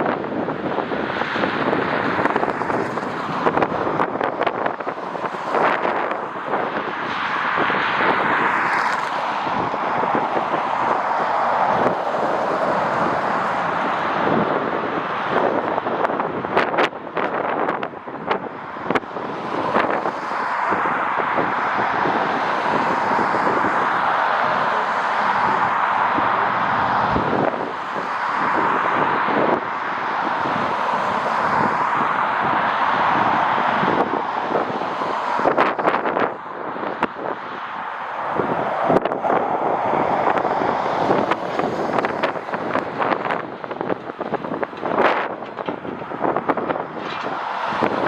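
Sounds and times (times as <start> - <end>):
wind on microphone: 0.0 - 48.0.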